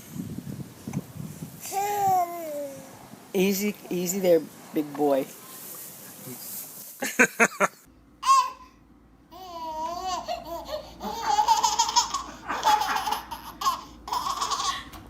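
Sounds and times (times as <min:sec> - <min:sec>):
baby laughing and babbling: 0:01.6 - 0:03.0, 0:08.2 - 0:08.7, 0:09.3 - 0:15.0.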